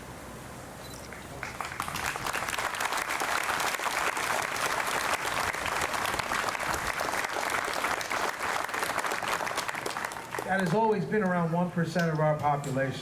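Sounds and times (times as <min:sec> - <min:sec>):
crowd applauding: 0:01.1 - 0:11.0.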